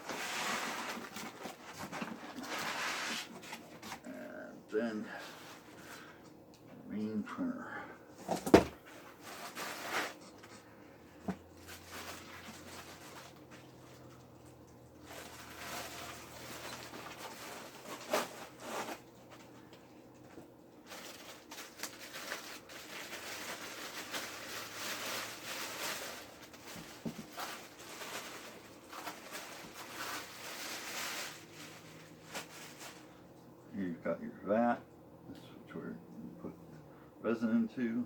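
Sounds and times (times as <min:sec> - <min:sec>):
packaging rustling and crinkling: 0:00.0 - 0:04.1, 0:08.3 - 0:10.6, 0:11.2 - 0:14.3, 0:15.0 - 0:19.6, 0:20.2 - 0:33.2.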